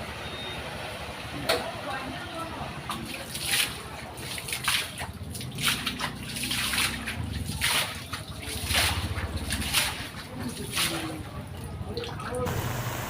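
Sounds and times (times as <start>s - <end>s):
floodwater splashing and sloshing: 0.2s - 12.5s
engine running low: 11.7s - 13.0s.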